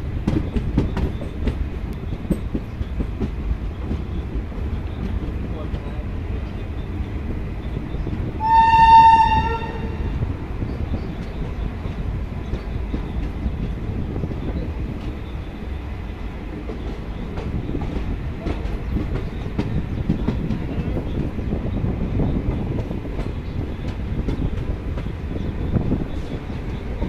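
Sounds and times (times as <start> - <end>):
train coach rumbling: 0.0 - 27.0
wheels clicking over rail joints: 0.2 - 6.7
locomotive horn blast: 8.4 - 10.2.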